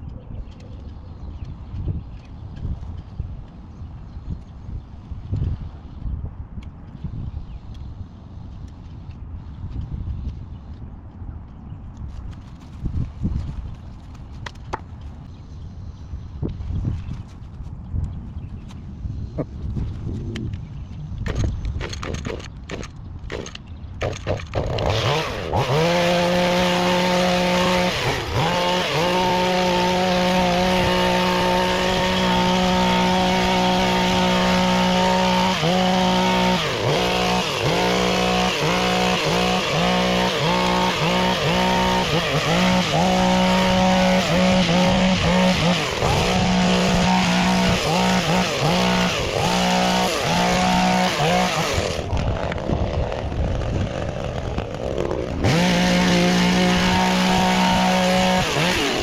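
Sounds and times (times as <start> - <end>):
small petrol engine revving: 23.3 - 59.0.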